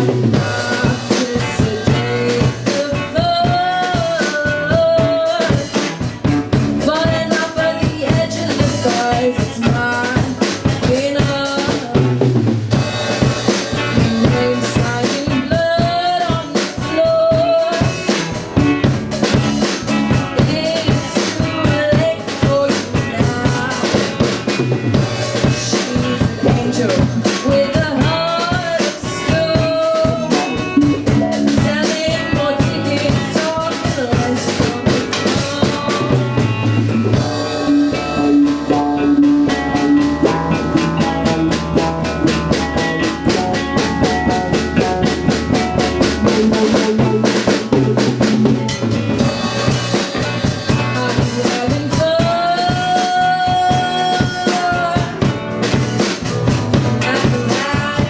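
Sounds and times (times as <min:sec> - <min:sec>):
drum kit beat: 0:00.0 - 0:58.0
rock band playing: 0:00.0 - 0:58.0.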